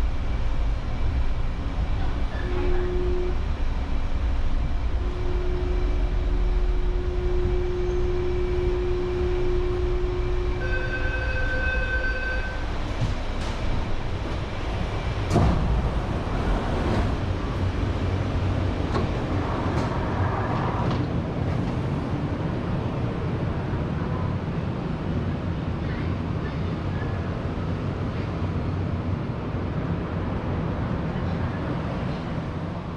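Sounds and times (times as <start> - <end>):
steady whine: 0.0 - 12.8
train low rumble: 0.0 - 32.9.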